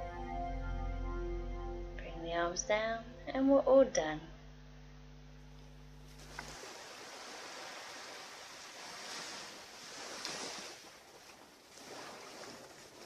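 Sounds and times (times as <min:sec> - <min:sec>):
ocean surf washing onto beach: 0:06.2 - 0:13.0.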